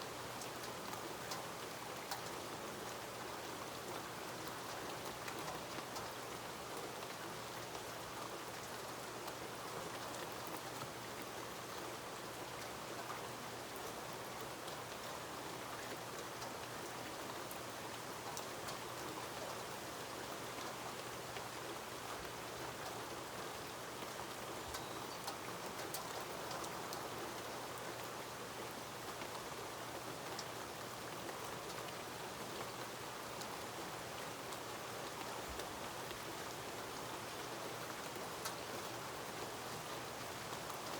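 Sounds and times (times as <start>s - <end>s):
steady rain hiss: 0.0s - 40.9s
raindrops ticking: 24.0s - 27.0s.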